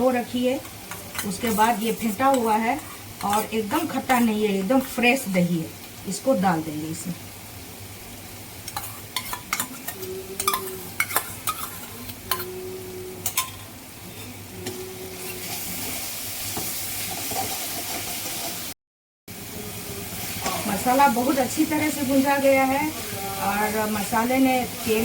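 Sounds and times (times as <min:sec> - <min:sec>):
spice masala sizzling: 0:00.0 - 0:25.0
spoon scraping a pan: 0:00.2 - 0:05.2, 0:08.6 - 0:12.6, 0:13.2 - 0:18.7.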